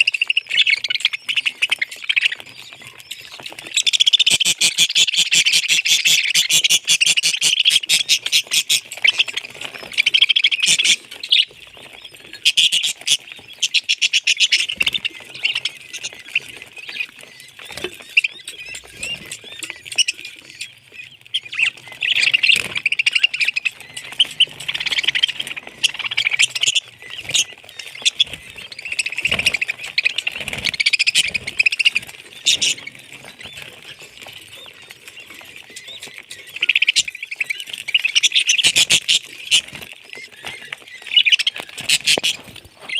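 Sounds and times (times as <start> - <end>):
parrots chirping and chattering: 0.0 - 42.9.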